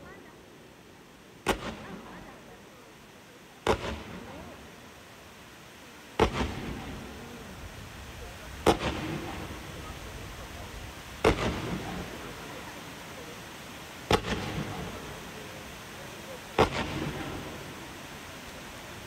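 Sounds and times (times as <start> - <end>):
fireworks bangs: 1.4 - 2.6, 3.6 - 4.8, 6.2 - 7.5, 8.2 - 13.4, 14.0 - 19.0.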